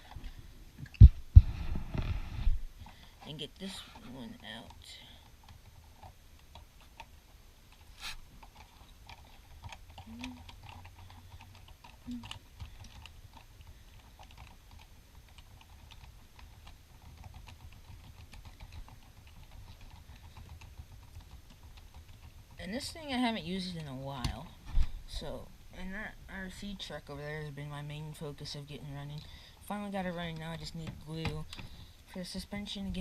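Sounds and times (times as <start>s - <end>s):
screwdriver and hand clicks on plastic: 30.0s - 31.8s.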